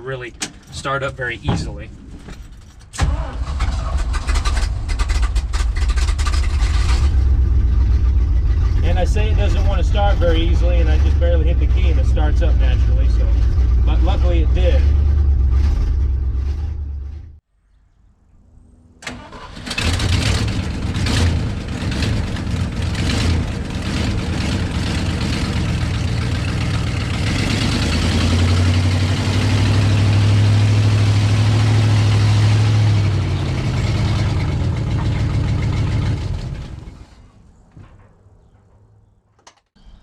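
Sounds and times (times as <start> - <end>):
engine cranking and starting: 2.4 - 9.2, 19.0 - 28.8
engine running: 3.0 - 17.4, 18.6 - 37.4.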